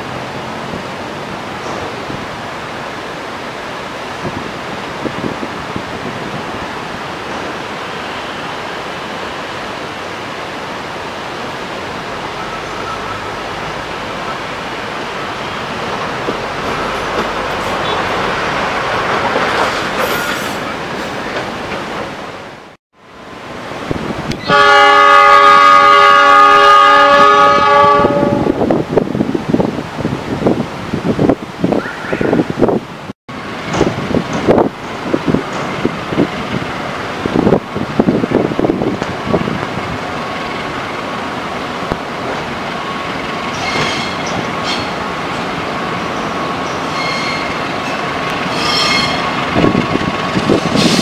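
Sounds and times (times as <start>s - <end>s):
train rumble and wheel noise: 0.0s - 51.0s
train horn chord: 24.5s - 28.6s.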